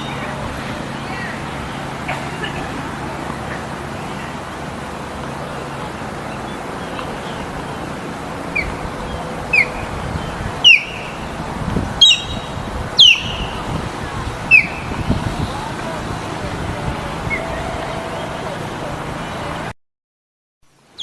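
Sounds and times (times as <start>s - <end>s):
bird calling: 0.0s - 19.6s
steady background hiss: 0.0s - 19.7s.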